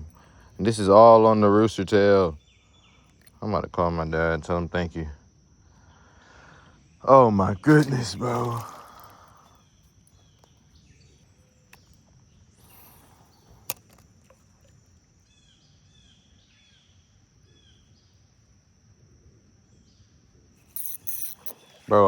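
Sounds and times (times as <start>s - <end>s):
high insect drone: 0.0s - 22.0s
faint bird chirps: 2.3s - 3.4s.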